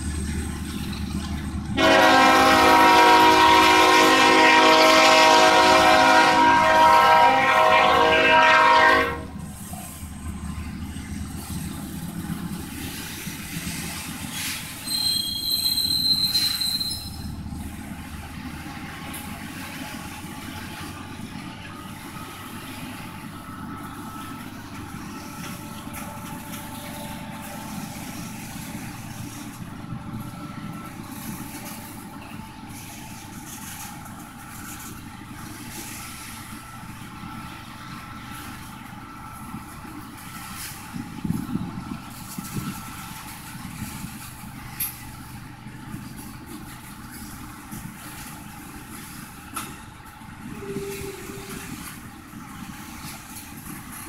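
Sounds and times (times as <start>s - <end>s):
train cars rumbling and clattering: 0.0s - 54.0s
train horn: 1.8s - 9.4s, 50.4s - 52.0s
wheel squeal: 14.3s - 17.4s.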